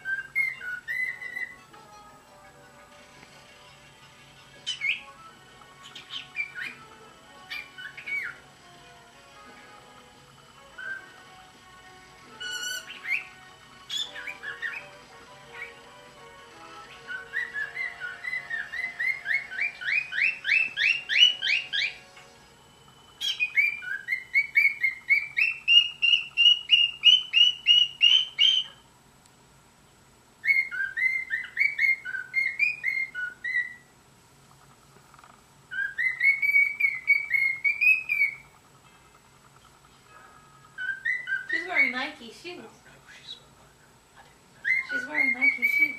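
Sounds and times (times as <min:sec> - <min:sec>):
cockatiel whistling: 0:00.0 - 0:01.7, 0:04.6 - 0:05.2, 0:05.8 - 0:08.5, 0:10.6 - 0:11.4, 0:12.3 - 0:16.0, 0:16.8 - 0:22.1, 0:23.1 - 0:28.8, 0:30.4 - 0:33.9, 0:35.7 - 0:38.5, 0:40.6 - 0:42.2, 0:44.6 - 0:45.9.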